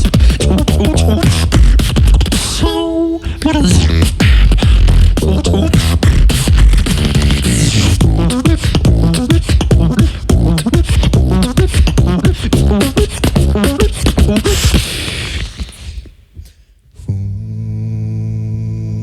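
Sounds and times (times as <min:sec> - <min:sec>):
person singing: 0:00.0 - 0:14.8
beatboxing: 0:00.0 - 0:17.1.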